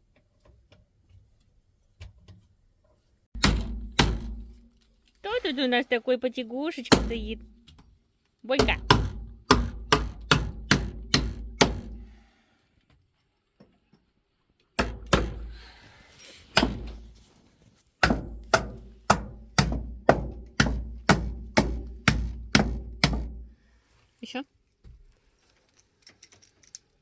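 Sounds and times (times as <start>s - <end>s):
hammer driving nails: 3.4s - 4.6s, 8.6s - 12.0s, 14.7s - 15.6s, 16.5s - 17.1s, 18.0s - 23.4s.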